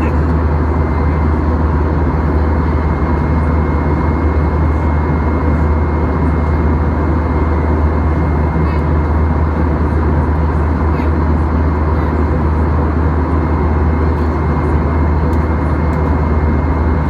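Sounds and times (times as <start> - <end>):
aircraft cabin hum: 0.0 - 17.0.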